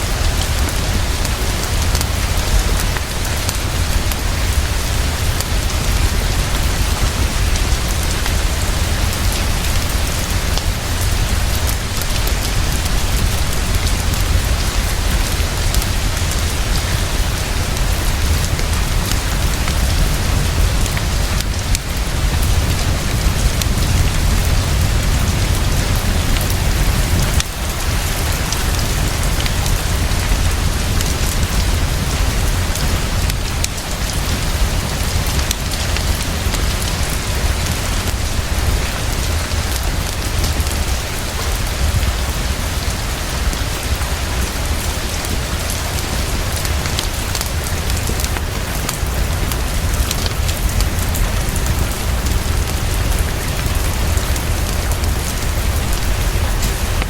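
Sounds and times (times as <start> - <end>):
heavy rainfall: 0.0 - 57.0
low rumble: 3.7 - 38.6.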